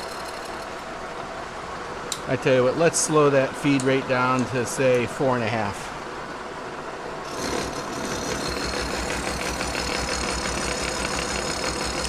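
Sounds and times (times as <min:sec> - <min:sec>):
milling machine cutting metal: 0:07.2 - 0:12.0.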